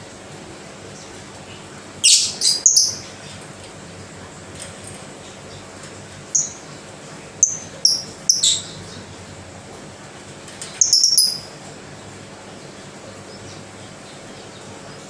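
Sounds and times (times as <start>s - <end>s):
lovebird chirping: 2.0s - 3.1s, 6.3s - 6.7s, 7.4s - 9.0s, 10.8s - 11.6s.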